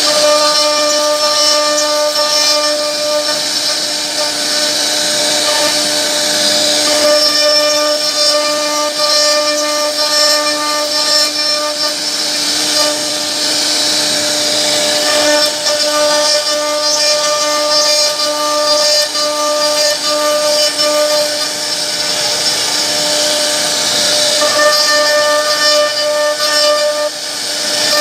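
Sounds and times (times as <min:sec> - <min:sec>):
bit cutting into wood: 0:00.0 - 0:28.0
cnc router spindle whine: 0:00.0 - 0:28.0.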